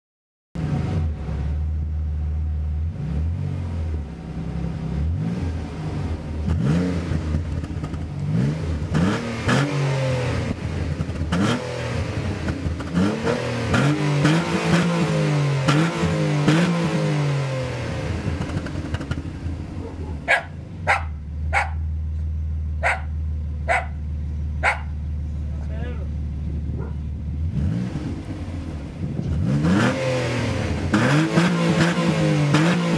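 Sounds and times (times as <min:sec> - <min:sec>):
car engine idling and revving: 0:00.6 - 0:32.9
dog barking: 0:19.8 - 0:21.9, 0:22.8 - 0:24.0, 0:24.6 - 0:25.0, 0:26.8 - 0:27.0.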